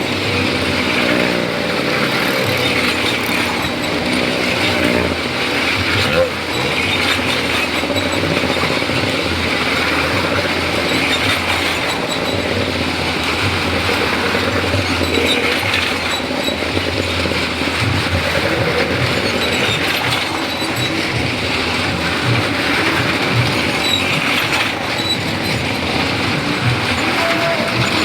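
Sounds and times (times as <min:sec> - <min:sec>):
motorcycle engines running: 0:00.0 - 0:28.0
tyres rumbling on wooden boards: 0:00.0 - 0:28.0.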